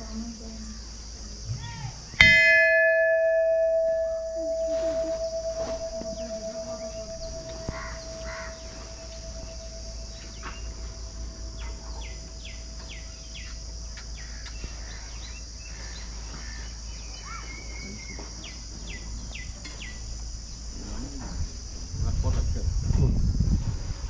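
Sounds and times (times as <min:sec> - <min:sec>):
insects droning: 0:00.0 - 0:24.0
low steady rumble: 0:00.0 - 0:24.0
bird calling falling notes: 0:02.6 - 0:19.1.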